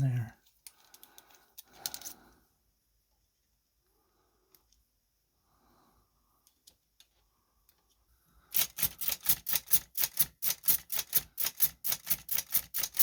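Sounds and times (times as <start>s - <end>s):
typewriter key action clacking: 8.6s - 13.0s.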